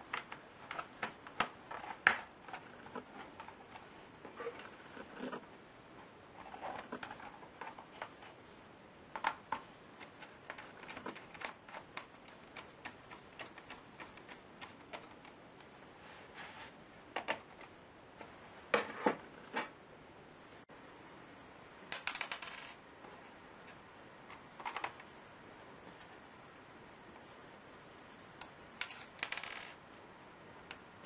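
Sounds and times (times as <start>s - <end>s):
laptop parts clicking and tapping: 9.2s - 15.4s.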